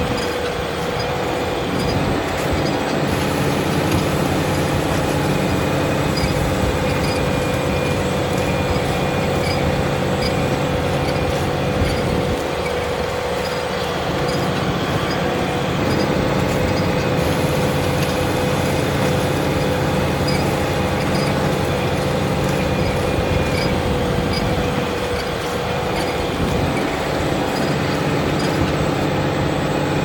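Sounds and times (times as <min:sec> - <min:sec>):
steady whine: 0:00.0 - 0:30.0
tractor engine under load: 0:00.0 - 0:30.0.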